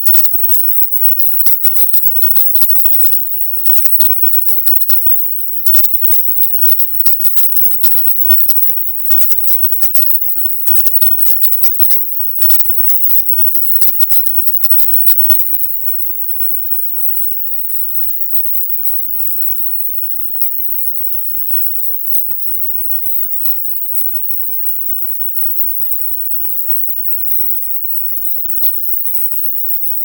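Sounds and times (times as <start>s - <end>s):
constant high-pitched tone: 0.0s - 30.0s.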